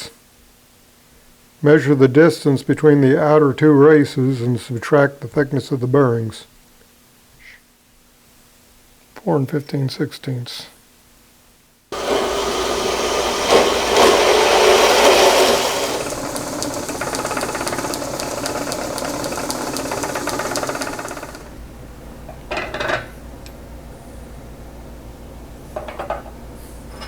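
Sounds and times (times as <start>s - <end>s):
metalworking machine cutting: 12.0s - 21.6s.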